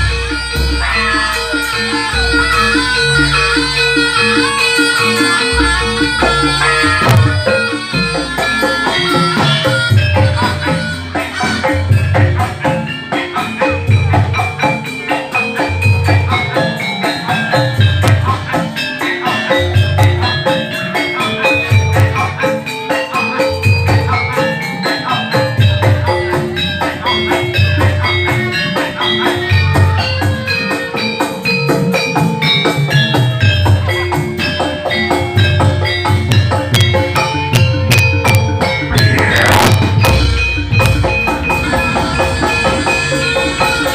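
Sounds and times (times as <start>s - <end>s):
metallophone notes: 0.0s - 43.9s
deep drum beat: 5.6s - 8.5s, 35.6s - 43.9s.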